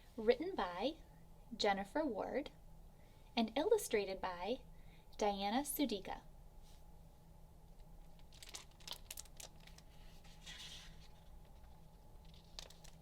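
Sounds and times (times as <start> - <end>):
book pages turning: 8.2 - 13.0.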